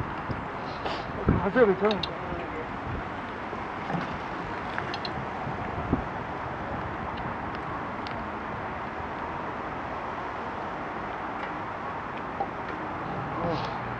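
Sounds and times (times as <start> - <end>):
outdoor background noise: 0.0 - 13.9
faint clicks: 4.7 - 5.2.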